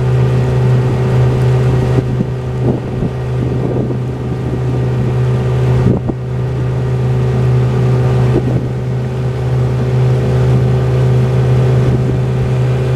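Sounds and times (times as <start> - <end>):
motorboat engine humming: 0.0 - 12.9.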